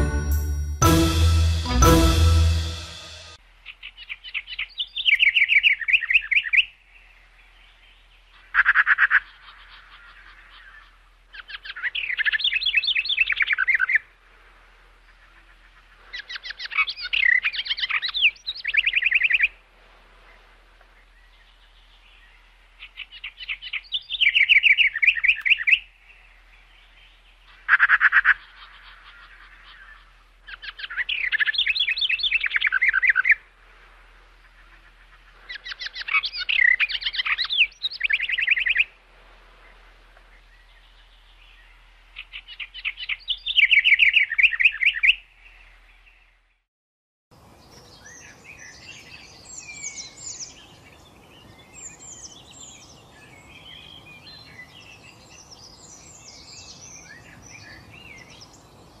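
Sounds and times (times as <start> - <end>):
steady outdoor hiss: 0.0 - 46.6, 47.3 - 59.0
birds chirping and twittering: 2.7 - 14.2, 14.9 - 19.6, 20.2 - 46.6, 47.4 - 59.0
songbird trilling: 22.2 - 25.9, 27.0 - 33.4, 34.4 - 38.9, 41.0 - 45.3.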